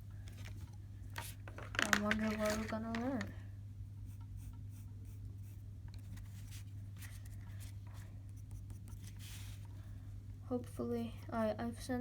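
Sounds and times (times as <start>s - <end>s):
pencil scratching on paper: 8.3s - 9.6s.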